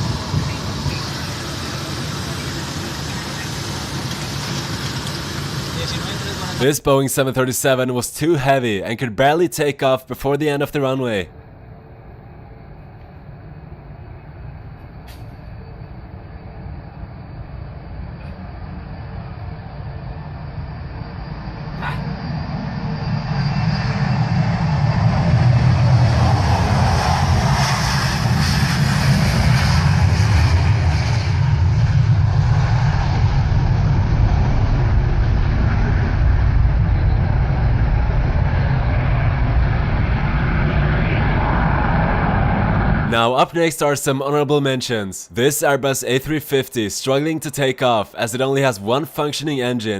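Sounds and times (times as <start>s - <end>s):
jet engines at takeoff: 0.0s - 9.8s, 10.5s - 43.9s
brief click: 15.0s - 15.4s.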